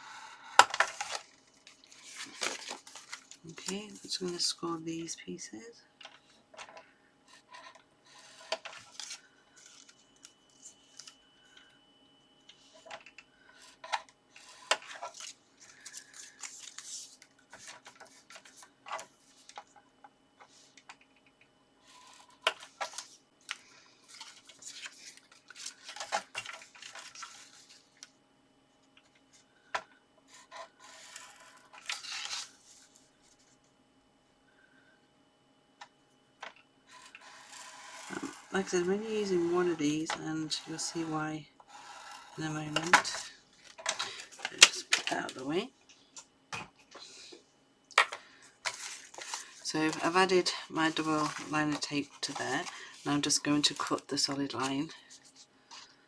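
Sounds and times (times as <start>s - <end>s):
paper rustling: 0.8s - 4.5s, 14.9s - 19.6s, 24.1s - 27.9s, 48.6s - 55.9s.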